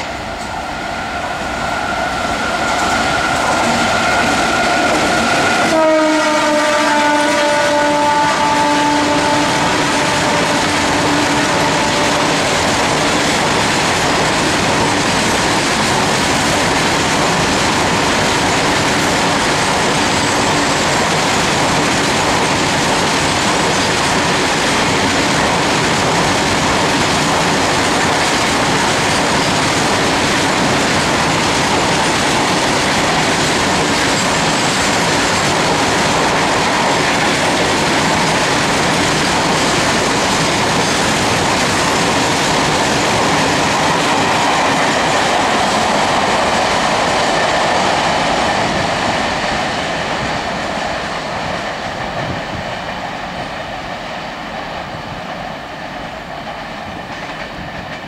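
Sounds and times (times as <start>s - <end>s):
freight train wheels on rails: 0.0s - 58.0s
train horn: 3.6s - 12.6s.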